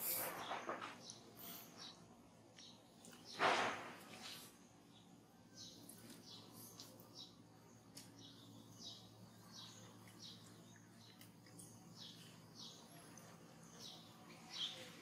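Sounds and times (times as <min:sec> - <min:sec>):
low steady hum: 0:00.0 - 0:15.0
faint bird chirps: 0:04.2 - 0:15.0.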